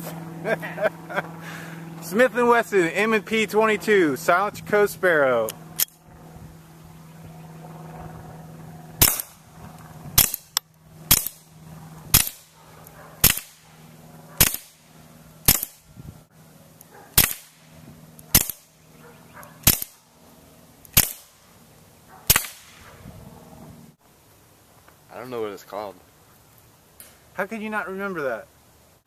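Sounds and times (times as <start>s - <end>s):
suppressed pistol shots: 9.0s - 9.4s, 10.2s - 11.4s, 12.1s - 12.5s, 13.2s - 13.6s, 14.4s - 14.8s, 15.5s - 15.8s, 17.2s - 17.6s, 18.3s - 18.7s, 19.6s - 20.0s, 20.9s - 21.3s, 22.3s - 22.8s.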